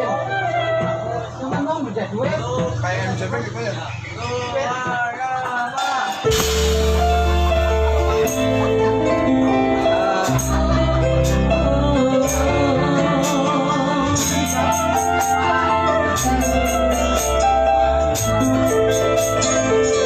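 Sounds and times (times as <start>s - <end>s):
band music with bass: 0.0s - 20.0s
tambourine jingles: 16.2s - 17.5s, 18.1s - 19.7s.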